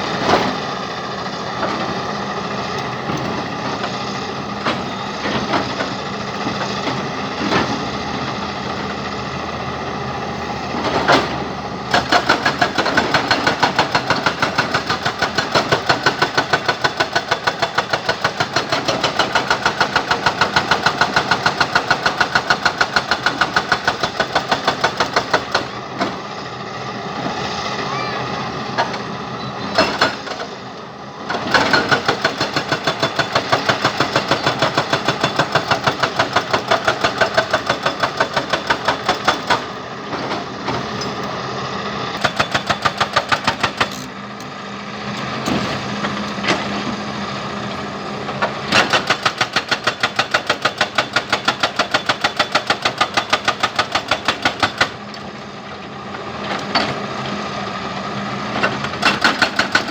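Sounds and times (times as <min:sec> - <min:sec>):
diesel engine running: 0:00.0 - 0:51.7, 0:52.6 - 0:59.9
hydraulic breaker hammering rock: 0:10.7 - 0:26.2, 0:29.7 - 0:30.6, 0:31.3 - 0:41.4, 0:42.2 - 0:44.6, 0:45.2 - 0:47.0, 0:48.3 - 0:55.1, 0:58.5 - 0:59.9.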